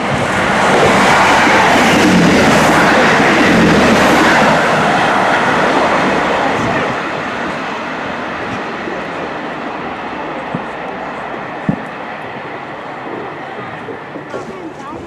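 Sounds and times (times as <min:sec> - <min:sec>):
train rushing past: 0:00.0 - 0:15.0.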